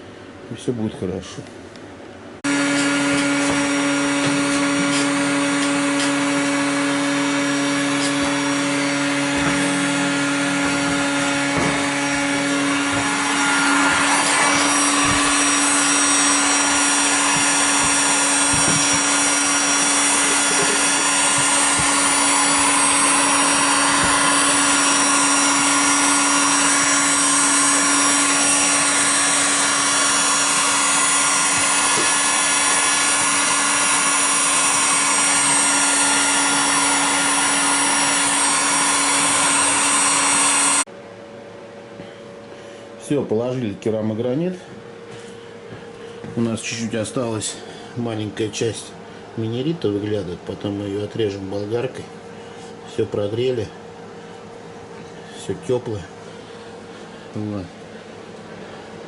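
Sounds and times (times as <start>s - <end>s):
electric blower motor humming: 2.4s - 42.6s.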